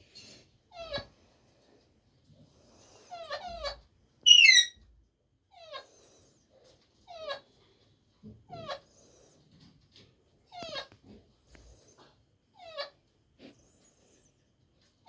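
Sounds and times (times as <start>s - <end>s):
animal whining calls: 4.3s - 4.8s.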